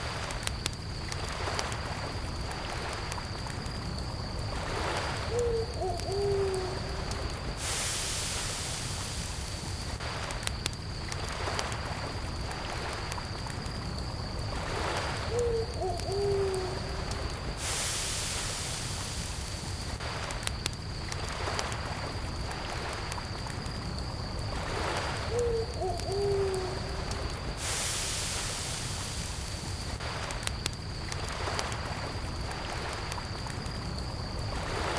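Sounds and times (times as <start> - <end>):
campfire crackling: 0.0 - 34.9
cricket trill: 0.0 - 34.9
owl hooting: 5.3 - 7.0, 15.3 - 17.0, 25.3 - 27.0
brief rush of hiss: 7.6 - 9.8, 17.6 - 20.1, 27.6 - 30.2.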